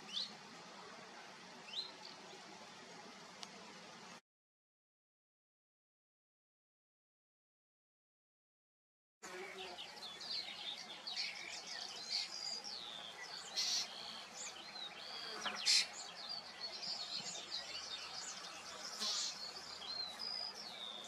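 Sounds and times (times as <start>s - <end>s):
songbirds singing and calling: 0.0s - 0.4s, 1.6s - 2.6s, 9.3s - 21.0s.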